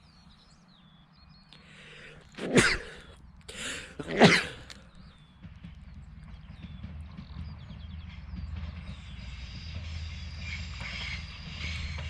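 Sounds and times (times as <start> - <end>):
faint birds chirping: 0.0 - 12.0
breath in: 1.6 - 4.0
person coughing: 2.3 - 4.8.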